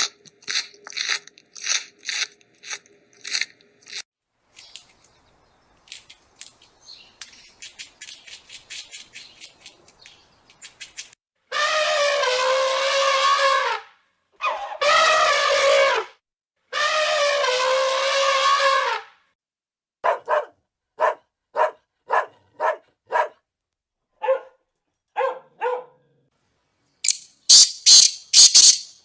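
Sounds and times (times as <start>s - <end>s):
dog barking: 20.0s - 23.4s, 24.2s - 26.2s.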